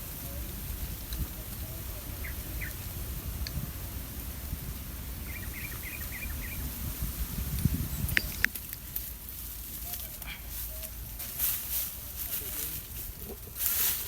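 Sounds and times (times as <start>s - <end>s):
steady low rumble: 0.0s - 13.9s
small bird high chirps: 5.2s - 6.8s, 7.7s - 8.5s.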